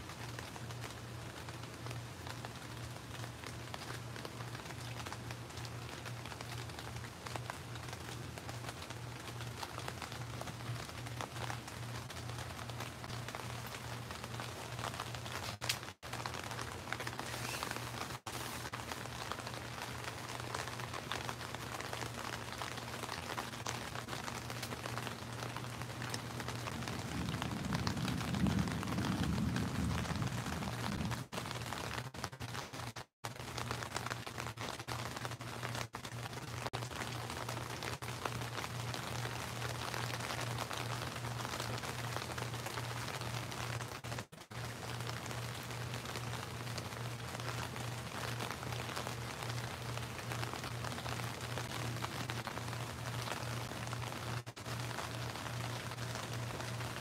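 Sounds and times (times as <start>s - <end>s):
steady rain falling: 0.0s - 57.0s
low rumble: 26.6s - 31.3s.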